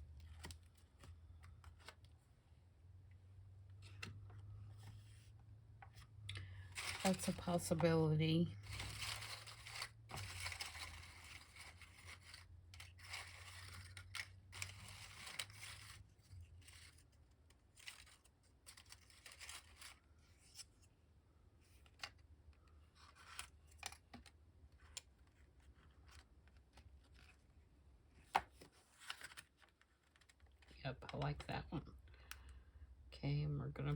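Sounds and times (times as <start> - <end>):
paper cards rustling and sliding: 0.2 - 2.2, 3.8 - 20.9, 22.9 - 27.5, 28.3 - 31.2.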